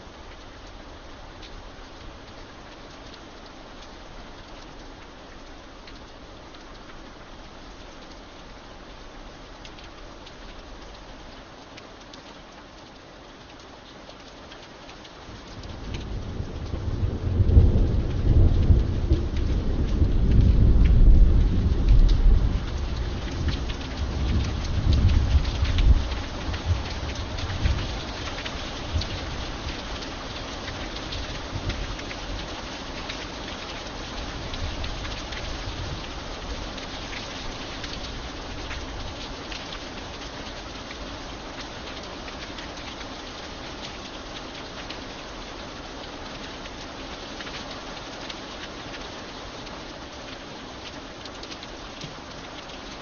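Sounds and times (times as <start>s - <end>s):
rain falling: 0.0s - 53.0s
single raindrops ticking: 0.2s - 53.0s
thunder rumbling: 15.3s - 29.8s.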